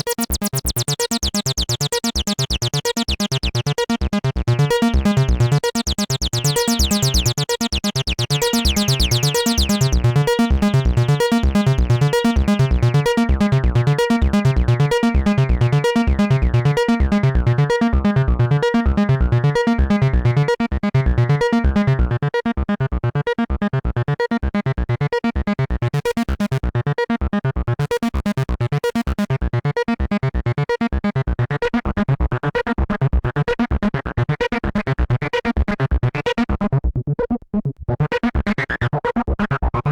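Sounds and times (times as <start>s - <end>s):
acid bass synthesizer line: 0.0s - 22.3s.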